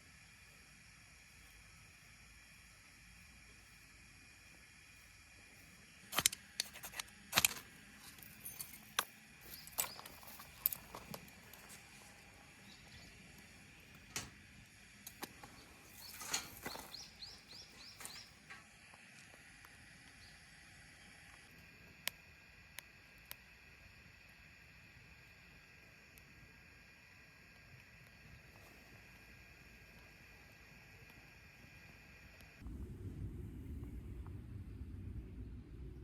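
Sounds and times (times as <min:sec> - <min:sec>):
small hard objects clattering: 0:06.1 - 0:11.8.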